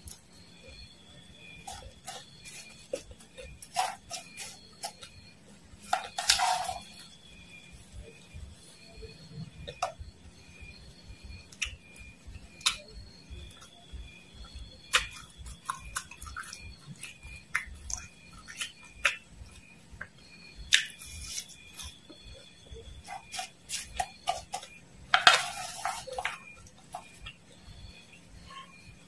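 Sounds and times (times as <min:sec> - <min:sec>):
crunching and chewing: 0:01.4 - 0:07.1, 0:11.5 - 0:27.8.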